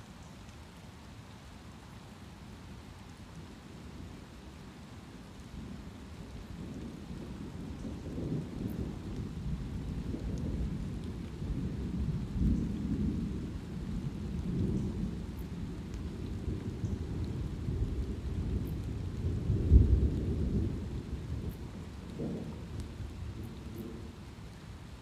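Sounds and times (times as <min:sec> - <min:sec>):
light rain: 0:00.0 - 0:25.0
thunder rumbling: 0:06.6 - 0:24.4.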